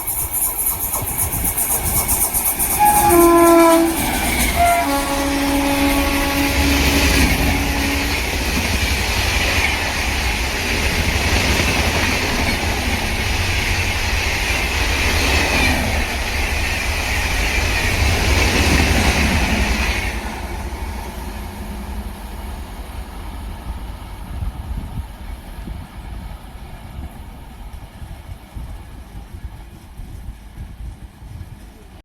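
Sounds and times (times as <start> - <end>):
train wheel and rail rumble: 0.0 - 32.0
train horn: 2.7 - 8.8.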